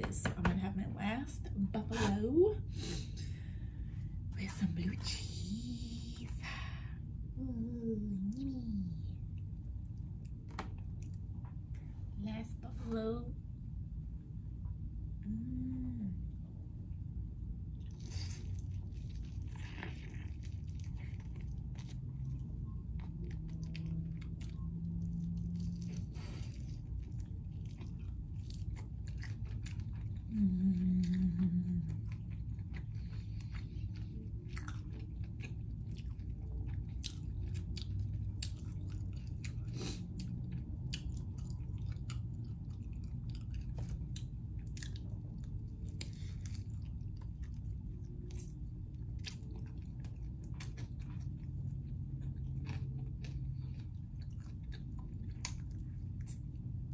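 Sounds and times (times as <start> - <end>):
wet chewing with smacks: 17.8 - 30.3, 31.0 - 56.9.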